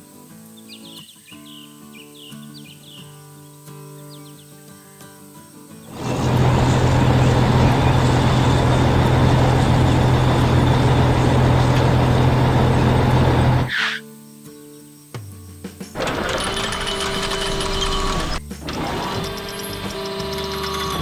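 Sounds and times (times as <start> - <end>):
vehicle engine running: 5.9 - 13.7, 16.0 - 21.0.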